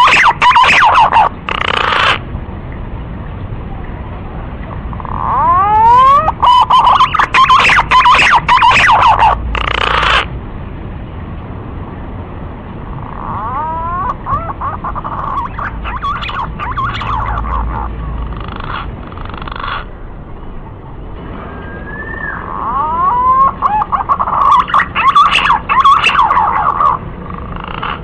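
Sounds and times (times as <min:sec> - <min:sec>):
pigeon whistled song: 0:00.0 - 0:02.2, 0:05.0 - 0:10.3, 0:13.4 - 0:17.9, 0:21.4 - 0:27.0.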